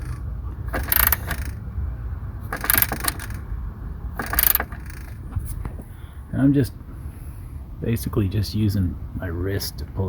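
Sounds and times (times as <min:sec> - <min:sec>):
cordless ratchet spinning: 0:00.0 - 0:01.6, 0:02.5 - 0:03.5, 0:04.2 - 0:05.2.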